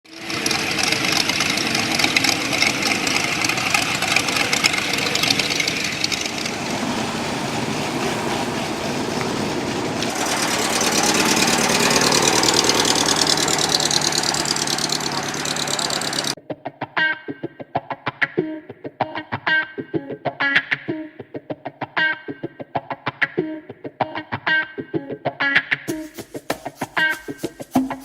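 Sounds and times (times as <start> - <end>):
car engine idling: 0.1 - 16.4.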